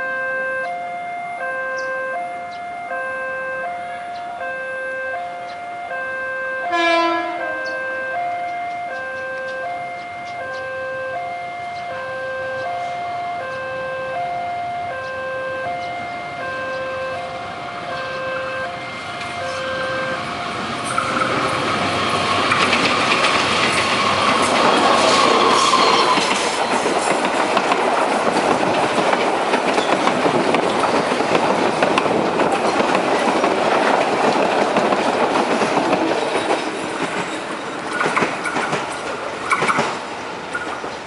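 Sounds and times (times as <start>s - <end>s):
locomotive passing: 3.4s - 41.0s
wheels clattering over rail joints: 20.6s - 41.0s.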